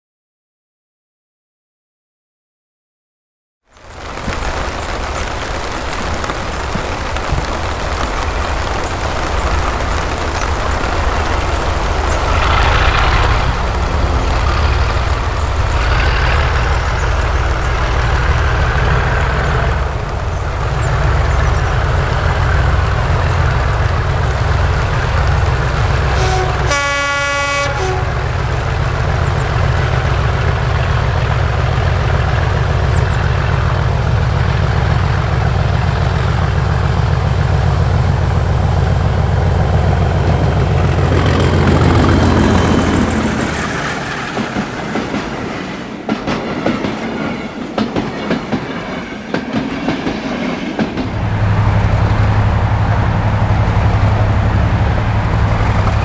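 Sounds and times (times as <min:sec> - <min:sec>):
diesel locomotive engine rumbling: 0:03.9 - 0:56.0
locomotive horn blast: 0:11.4 - 0:20.0, 0:25.4 - 0:28.6.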